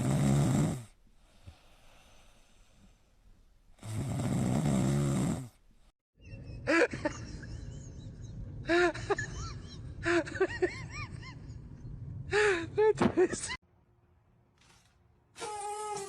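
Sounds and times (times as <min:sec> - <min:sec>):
animal snore-like breath: 0:03.7 - 0:05.6.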